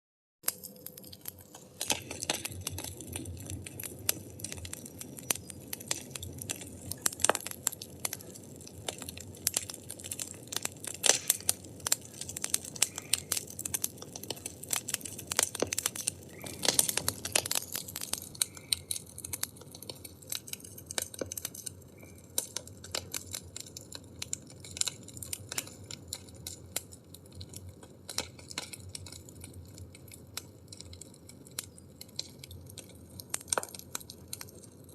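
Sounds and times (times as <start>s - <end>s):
firewood crackling and popping: 0.4s - 34.9s
low rumble of flames: 0.5s - 34.9s.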